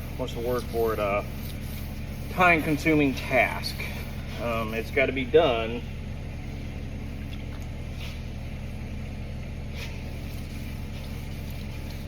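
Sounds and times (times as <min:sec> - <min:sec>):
sanding pad swishes on metal: 0:00.0 - 0:05.2, 0:07.9 - 0:08.4, 0:09.6 - 0:12.0
low machine hum: 0:00.0 - 0:12.0.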